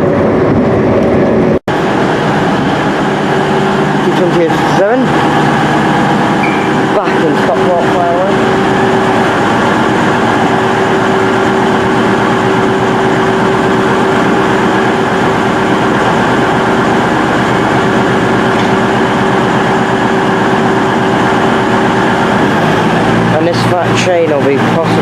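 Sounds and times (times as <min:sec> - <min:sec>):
train running drone: 0:00.0 - 0:25.0.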